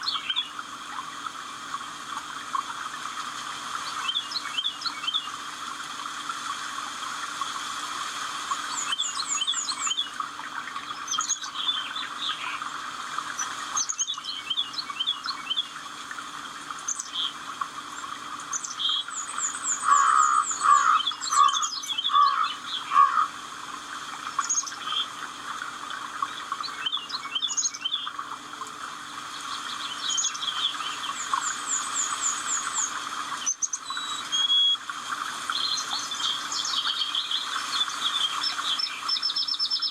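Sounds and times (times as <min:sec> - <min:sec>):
birds singing and calling: 0:00.0 - 0:01.3, 0:03.8 - 0:05.4, 0:08.5 - 0:15.9, 0:16.8 - 0:23.4, 0:24.2 - 0:25.2, 0:26.1 - 0:28.4, 0:29.3 - 0:34.8, 0:35.4 - 0:39.9
faint steady hum: 0:00.0 - 0:39.9.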